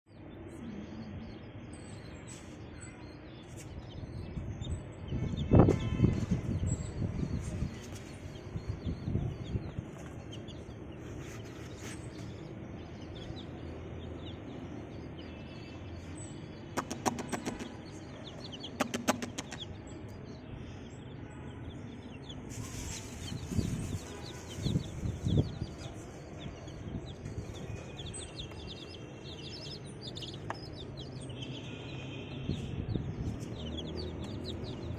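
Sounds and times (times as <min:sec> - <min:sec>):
baby chicks peeping: 0:00.5 - 0:34.9
chicks rustling and bumping: 0:09.6 - 0:12.4, 0:22.5 - 0:25.9, 0:26.7 - 0:31.1, 0:33.2 - 0:34.9.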